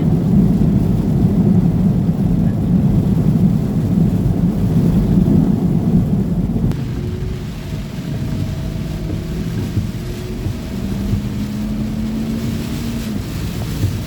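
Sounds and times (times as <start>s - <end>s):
pickup truck engine rumble: 0.0s - 14.0s
tyre noise on wet road: 0.0s - 14.0s.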